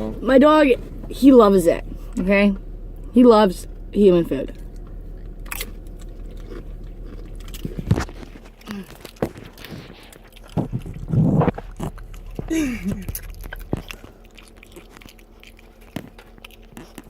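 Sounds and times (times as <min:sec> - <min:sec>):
crunching and chewing chips: 0:04.3 - 0:17.0.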